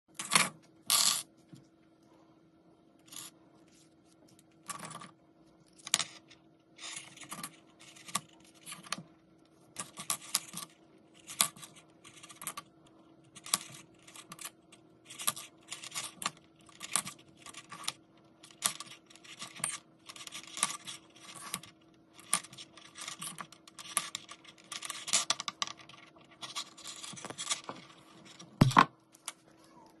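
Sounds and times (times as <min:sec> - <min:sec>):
steady low hum: 0:00.1 - 0:30.0
scrapes and clicks of small objects: 0:13.3 - 0:29.5.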